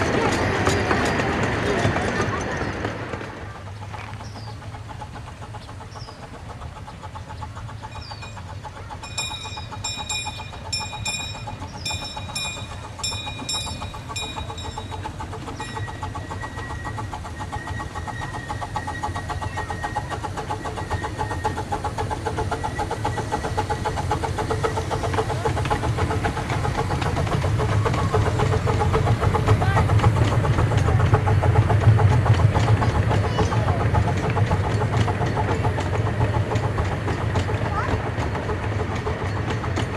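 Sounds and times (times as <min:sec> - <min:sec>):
rumble of train cars: 0:00.0 - 0:39.9
steam locomotive running: 0:00.0 - 0:39.9
bell ringing: 0:09.0 - 0:15.0.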